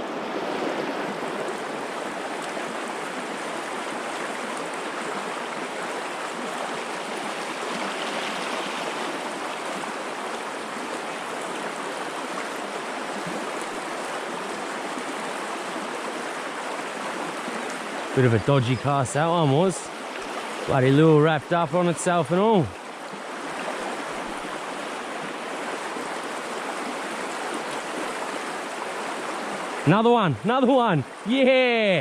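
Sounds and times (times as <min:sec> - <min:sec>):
river water rushing: 0:00.0 - 0:32.0.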